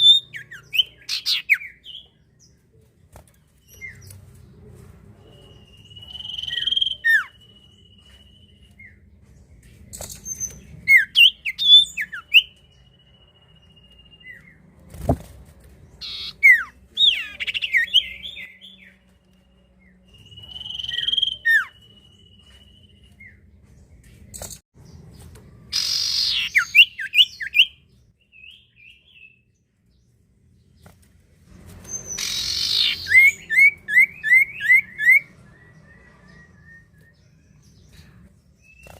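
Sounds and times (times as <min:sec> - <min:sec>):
harsh rasping bird calls: 0:00.0 - 0:02.0, 0:16.0 - 0:18.9, 0:25.7 - 0:27.7, 0:31.9 - 0:35.3
bird singing whistled notes: 0:00.0 - 0:02.2, 0:05.2 - 0:09.1, 0:09.9 - 0:14.6, 0:16.0 - 0:23.5, 0:25.7 - 0:29.6, 0:31.9 - 0:38.9.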